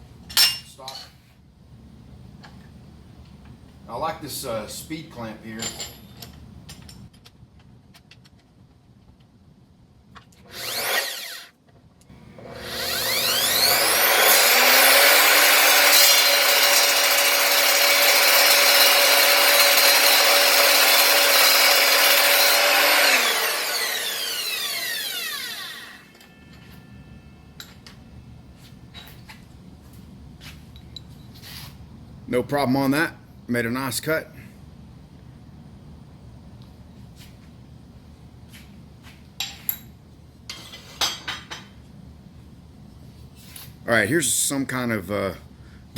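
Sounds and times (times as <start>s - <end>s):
miter saw cutting metal: 10.5s - 11.5s, 12.2s - 27.8s
saw spinning down whine: 10.5s - 11.5s, 12.2s - 27.7s.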